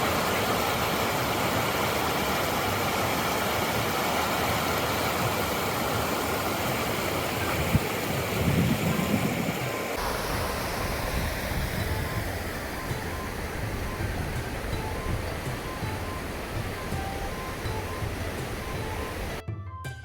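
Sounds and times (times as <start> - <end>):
waterfall rushing: 0.0 - 19.4.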